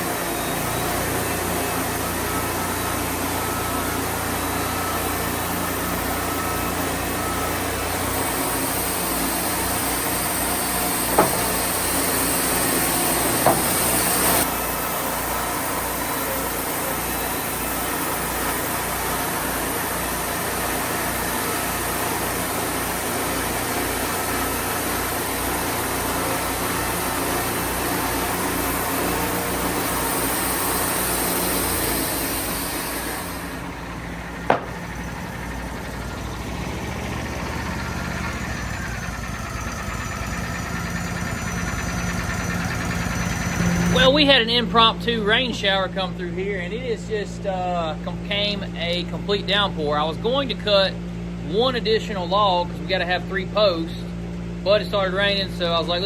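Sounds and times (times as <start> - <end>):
sawmill engine running: 0.0 - 56.0
sharp knocks: 10.9 - 14.5, 34.4 - 35.1.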